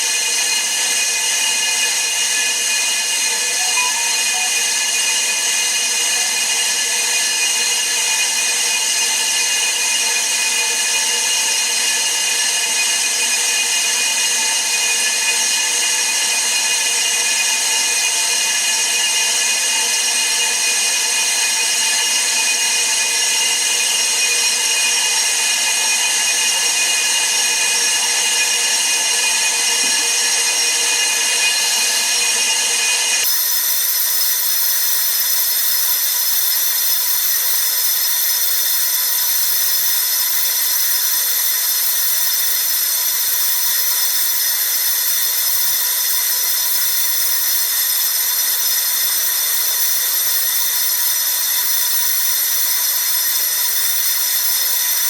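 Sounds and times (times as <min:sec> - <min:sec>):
brake lathe high whine: 0:27.1 - 0:55.0.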